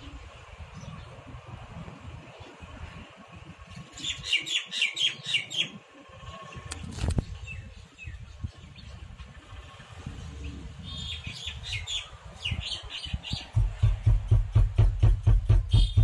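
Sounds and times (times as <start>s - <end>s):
bird chirping: 3.9s - 14.0s
sharp knock: 13.6s - 16.0s.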